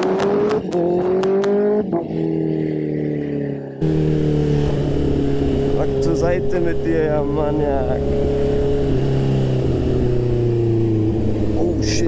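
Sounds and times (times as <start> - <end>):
motorcycle engine shifting gears: 0.0 - 12.0
deeper rumble: 3.8 - 12.0.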